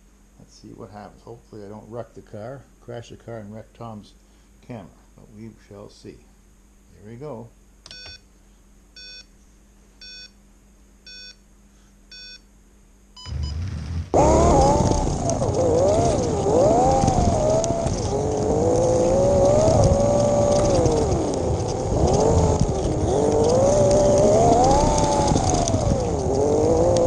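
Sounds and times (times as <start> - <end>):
short electronic beeps: 7.9 - 8.2, 9.0 - 9.3, 10.0 - 10.4, 11.1 - 11.4, 12.1 - 12.4
slot car motor whine: 13.2 - 27.0.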